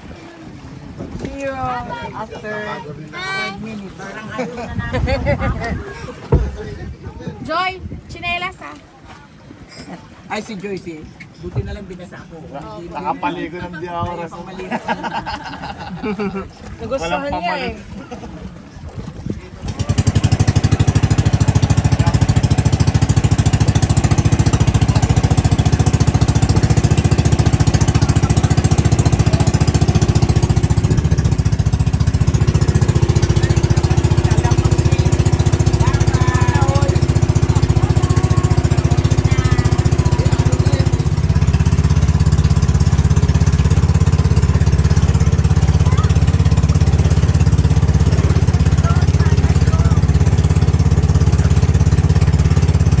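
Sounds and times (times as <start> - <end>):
small boat engine running: 14.6 - 53.0.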